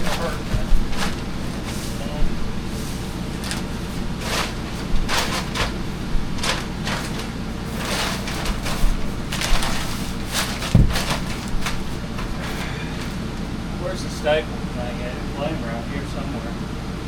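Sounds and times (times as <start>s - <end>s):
plastic sheet crinkling: 0.0s - 12.7s
dull thump: 10.6s - 11.9s.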